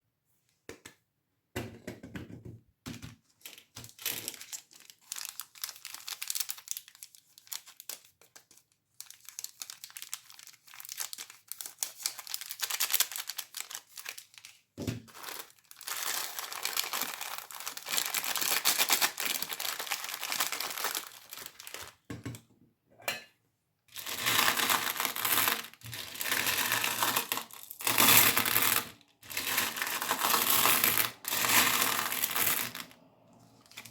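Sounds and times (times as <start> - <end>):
plastic wrappers crinkling: 3.4 - 22.1, 23.9 - 33.9.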